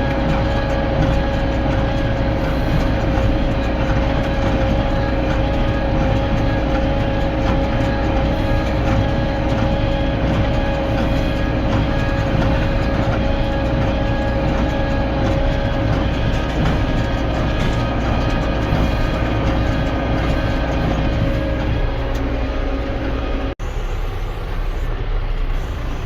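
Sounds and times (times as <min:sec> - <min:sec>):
hay baler whine: 0:00.0 - 0:26.0
tractor engine running: 0:00.0 - 0:26.0.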